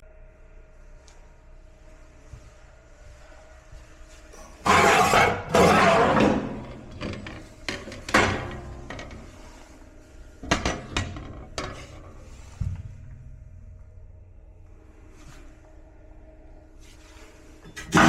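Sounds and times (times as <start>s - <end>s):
metal rattling scrapes: 4.6s - 9.7s.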